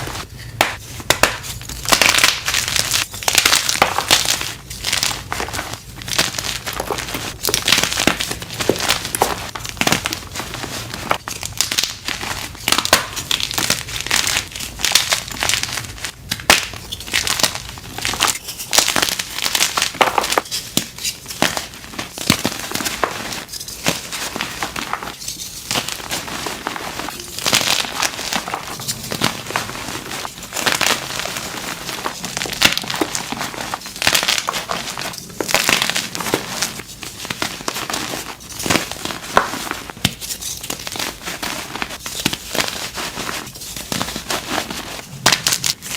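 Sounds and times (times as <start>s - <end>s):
chalk blocks crushed by hand: 16.3s - 26.2s.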